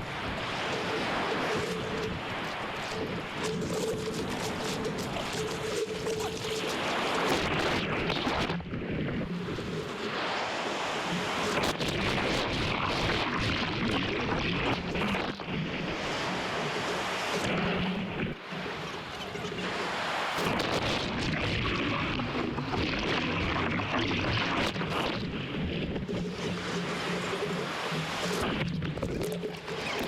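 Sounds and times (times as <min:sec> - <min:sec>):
wind buffeting microphone: 0:00.0 - 0:10.1
ocean surf rushing: 0:00.0 - 0:30.0.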